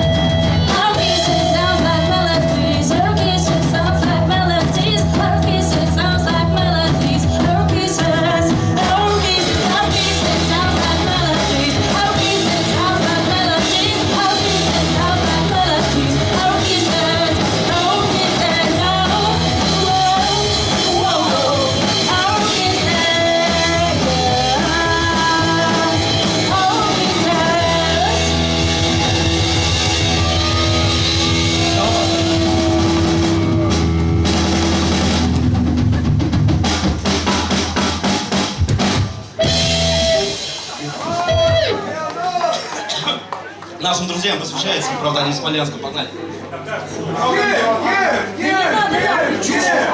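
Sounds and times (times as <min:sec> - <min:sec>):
lead vocal singing: 0:00.0 - 0:34.0
pop-punk band playing: 0:00.0 - 0:41.9.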